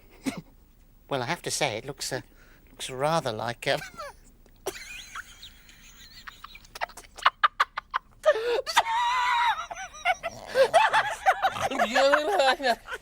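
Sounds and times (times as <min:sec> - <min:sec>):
giggling snickering voices: 0:03.8 - 0:13.0
wavering cartoonish cry: 0:08.3 - 0:11.9.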